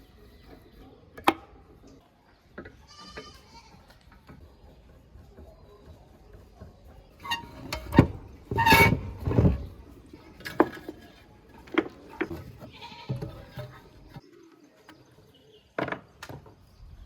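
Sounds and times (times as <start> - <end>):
short scraping squeal: 7.2 - 9.7.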